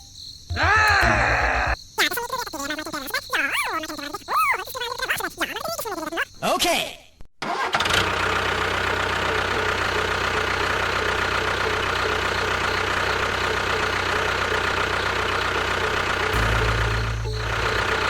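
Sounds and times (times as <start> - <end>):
tractor engine idling: 7.4 - 18.0.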